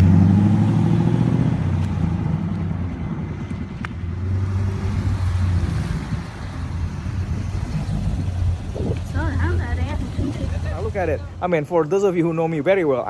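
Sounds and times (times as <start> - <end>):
vee eight engine idling: 6.1 - 13.0.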